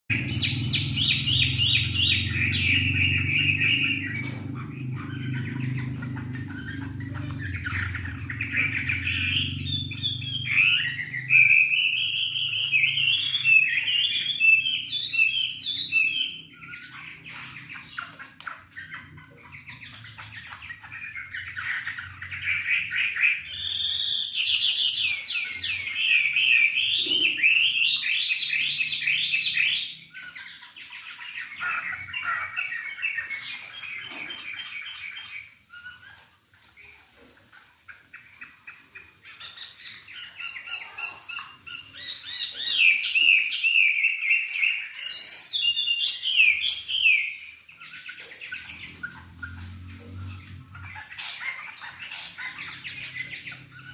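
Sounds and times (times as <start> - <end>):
bird singing: 0.0 - 37.0, 37.9 - 53.9.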